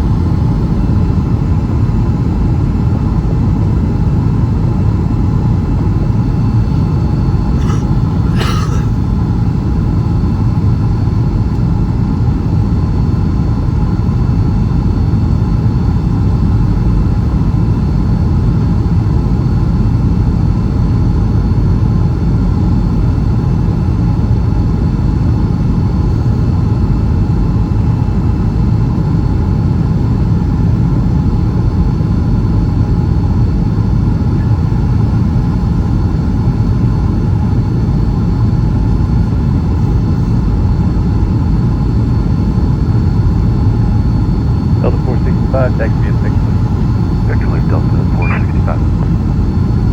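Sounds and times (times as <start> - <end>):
aircraft cabin engine rumble: 4.9 - 12.7, 37.5 - 49.9.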